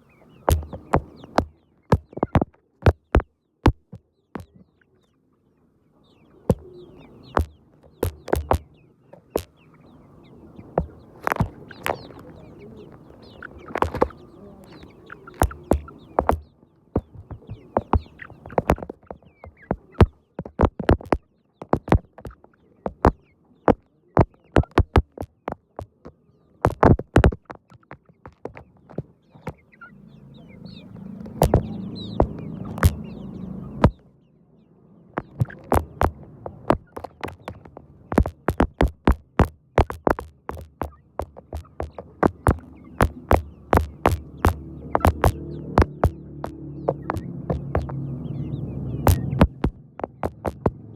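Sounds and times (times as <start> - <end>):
chickens clucking: 0.0 - 3.2, 5.9 - 34.0, 35.2 - 50.9
sharp irregular clicks and taps: 0.5 - 4.6, 7.4 - 8.7, 11.2 - 12.0, 13.7 - 14.1, 15.4 - 26.0, 26.6 - 29.6, 31.2 - 33.0, 35.2 - 48.0, 49.0 - 50.9.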